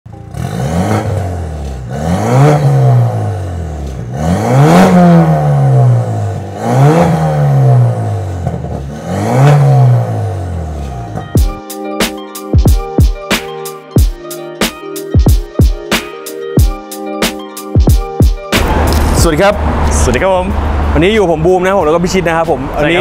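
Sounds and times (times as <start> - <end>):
car engine revving: 0.1 - 11.2, 17.9 - 23.0.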